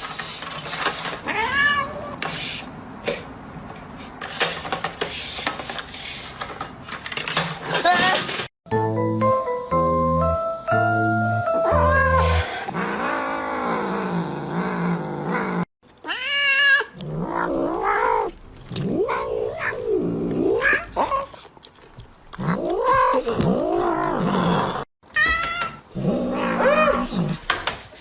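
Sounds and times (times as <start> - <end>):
cat yowling: 1.3 - 2.2, 11.7 - 12.4, 16.1 - 18.3, 25.2 - 27.1
mallet musical notes: 8.7 - 12.4.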